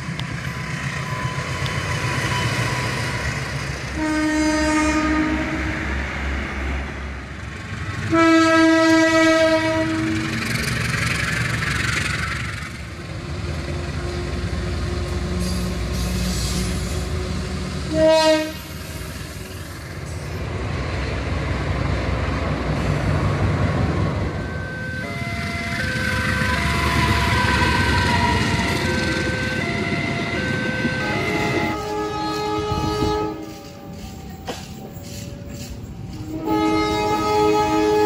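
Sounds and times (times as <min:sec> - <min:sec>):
diesel trains rumbling: 0:00.0 - 0:38.0
train horn: 0:03.9 - 0:05.8, 0:08.0 - 0:10.4, 0:17.8 - 0:18.8, 0:24.4 - 0:33.7, 0:36.2 - 0:38.0.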